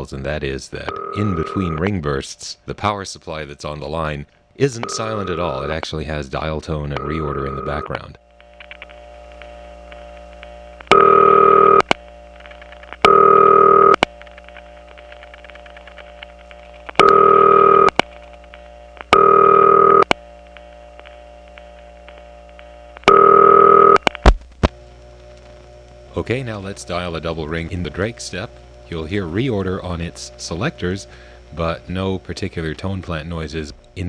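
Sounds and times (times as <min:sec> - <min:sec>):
reorder tone: 0:00.0 - 0:02.2, 0:04.0 - 0:34.0
power supply hum: 0:00.0 - 0:34.0
dial tone: 0:00.9 - 0:01.8, 0:10.9 - 0:12.0, 0:13.0 - 0:14.1, 0:16.9 - 0:18.0, 0:19.1 - 0:20.2, 0:23.0 - 0:24.1
sharp clicks on phone line: 0:08.4 - 0:12.0
telephone ringback bursts: 0:10.9 - 0:11.8, 0:13.0 - 0:14.0, 0:17.0 - 0:17.9, 0:19.2 - 0:20.1, 0:23.1 - 0:24.0.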